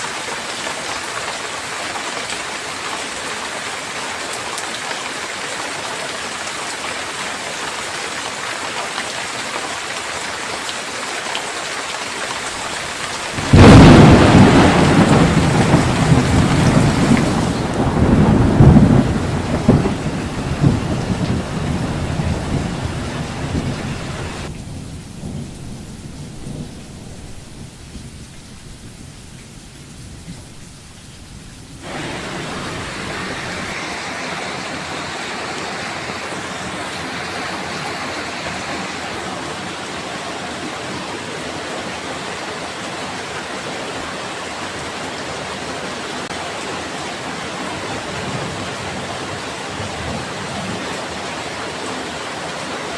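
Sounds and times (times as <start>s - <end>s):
heavy rain: 0.0s - 52.9s
thunder clap and rumbling: 12.6s - 29.1s, 31.8s - 34.0s.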